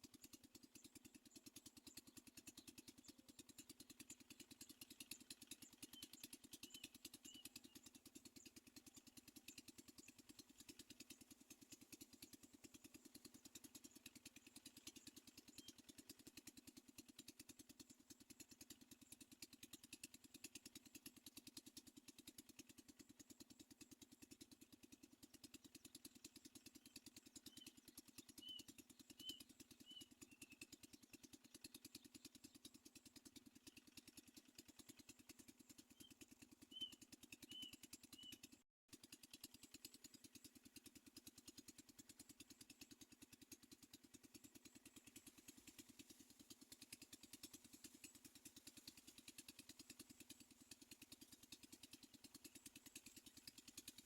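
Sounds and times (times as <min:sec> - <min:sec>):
bird chirping: 0:05.6 - 0:07.8, 0:26.9 - 0:31.0, 0:35.9 - 0:38.5.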